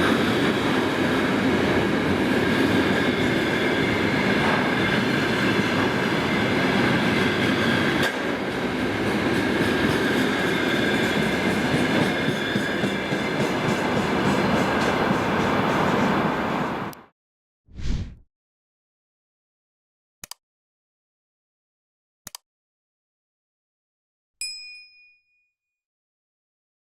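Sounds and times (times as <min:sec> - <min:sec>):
train wheels rumbling on rail: 0:00.0 - 0:16.9.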